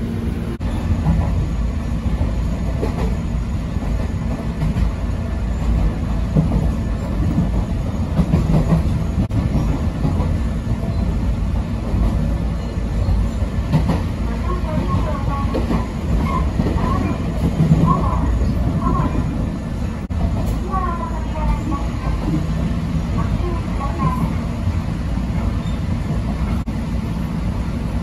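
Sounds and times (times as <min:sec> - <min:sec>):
train rumbling on rails: 0:00.0 - 0:28.0.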